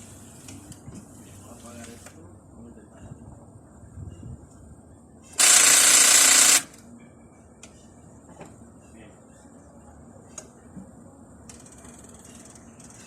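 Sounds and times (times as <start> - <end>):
starter solenoid chattering: 5.4 - 6.8.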